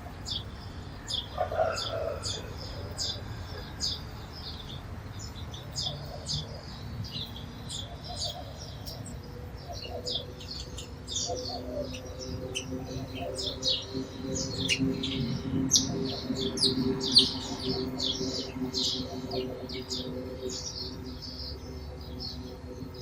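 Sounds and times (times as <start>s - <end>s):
sparrows chirping: 0.0s - 23.0s.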